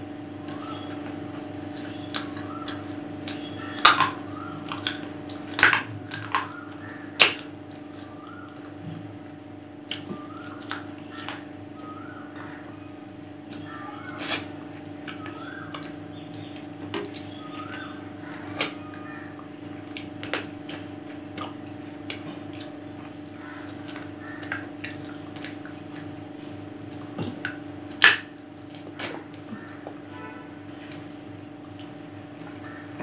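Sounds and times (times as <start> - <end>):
steady low hum: 0.0 - 33.0
chewing with wet mouth clicks: 0.5 - 9.0, 9.8 - 11.9, 13.4 - 30.0, 30.7 - 32.7
lip smacks: 9.9 - 11.4, 13.5 - 16.0, 16.6 - 18.8, 19.4 - 26.2, 26.9 - 29.7.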